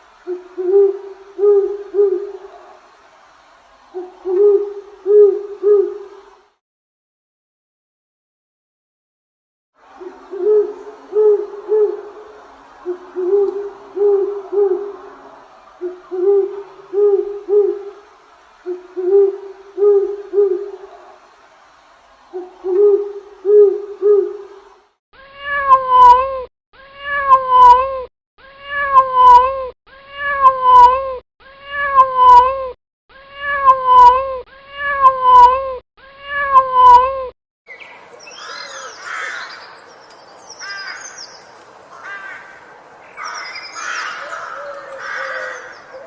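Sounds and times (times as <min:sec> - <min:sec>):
owl hooting: 0:00.2 - 0:02.8, 0:04.0 - 0:06.2, 0:10.0 - 0:21.2, 0:22.4 - 0:24.6, 0:43.2 - 0:46.0
cat meowing: 0:25.4 - 0:26.4, 0:28.6 - 0:37.2
high chirping animal calls: 0:37.7 - 0:39.8, 0:43.0 - 0:46.0.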